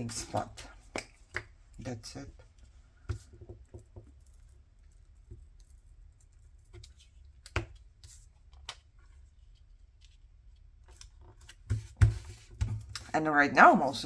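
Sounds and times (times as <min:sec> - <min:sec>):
soft taps and paper rustles: 0:02.4 - 0:10.2.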